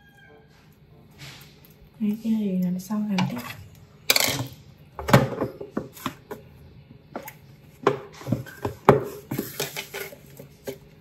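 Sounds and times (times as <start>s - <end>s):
kitchenware clacking and knocking: 3.1s - 6.2s.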